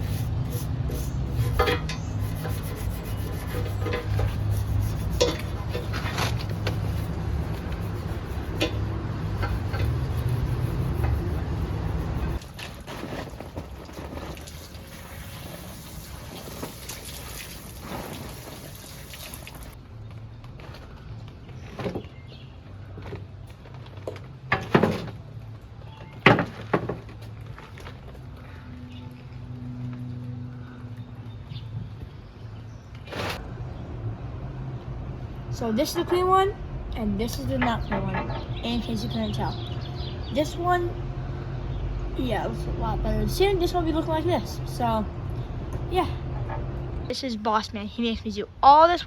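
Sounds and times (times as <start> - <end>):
steady low hum: 0.0 - 12.4
brush scraping on wood: 0.0 - 19.0.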